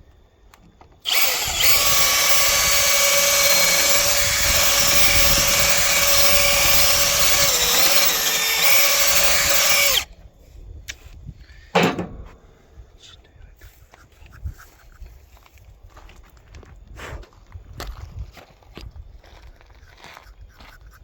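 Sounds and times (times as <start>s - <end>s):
power drill whining: 1.0s - 10.1s.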